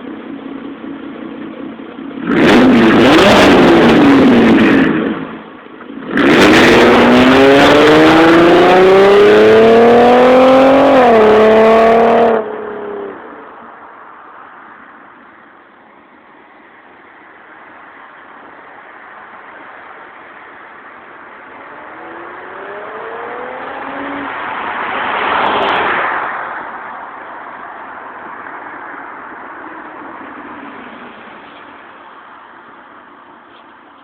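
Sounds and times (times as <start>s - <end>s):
car accelerating past: 6.1s - 13.3s, 21.7s - 29.2s.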